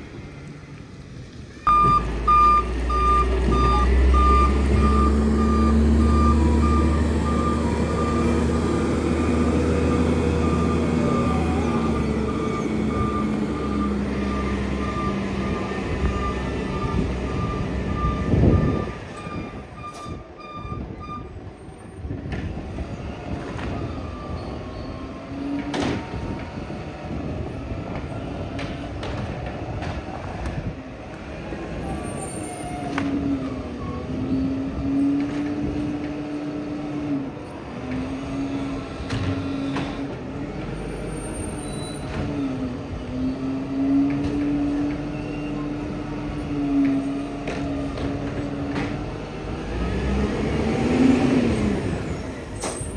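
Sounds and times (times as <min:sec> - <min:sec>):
truck engine running: 0:00.1 - 0:19.2
reversing beeper: 0:01.7 - 0:21.3.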